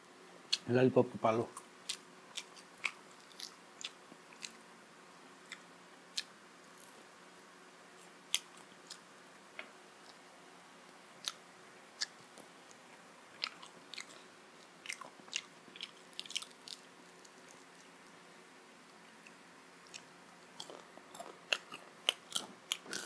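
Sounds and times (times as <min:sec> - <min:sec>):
person biting and chewing food: 0:01.8 - 0:04.6, 0:11.2 - 0:18.1, 0:19.2 - 0:23.0.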